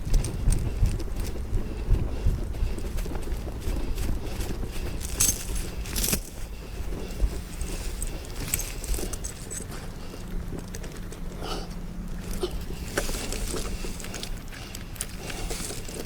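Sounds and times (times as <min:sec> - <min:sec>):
chain clinking and rattling: 0:04.7 - 0:10.8.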